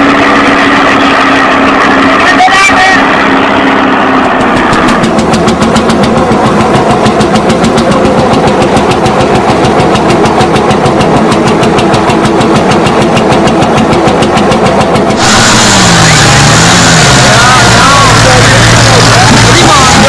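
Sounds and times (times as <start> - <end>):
tractor diesel engine thumping: 4.4 - 20.0.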